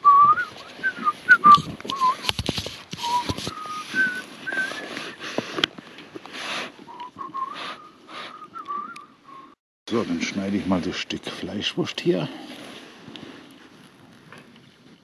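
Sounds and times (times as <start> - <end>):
person whistling a tune: 0.0 - 2.3, 3.0 - 5.2, 6.9 - 9.6
rustling from handling things: 0.3 - 7.8.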